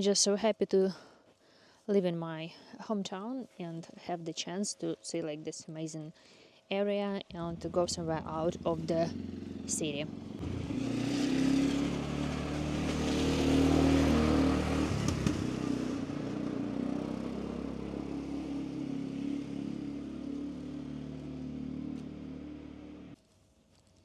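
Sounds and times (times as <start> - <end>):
vehicle engine running: 7.3 - 23.2.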